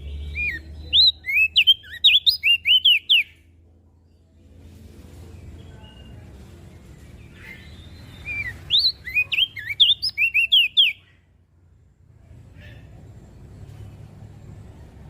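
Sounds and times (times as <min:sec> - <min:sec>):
bird chirps sweeping in pitch: 0:00.1 - 0:03.4, 0:07.6 - 0:11.1.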